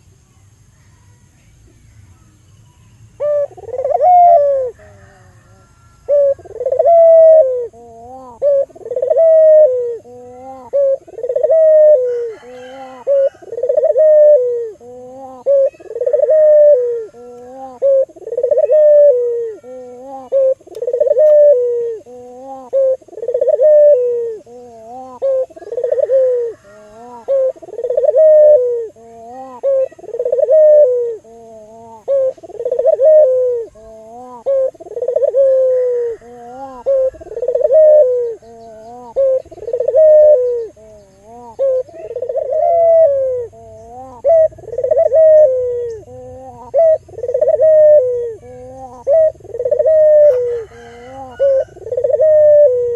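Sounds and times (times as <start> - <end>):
dove cooing: 3.2 - 52.9.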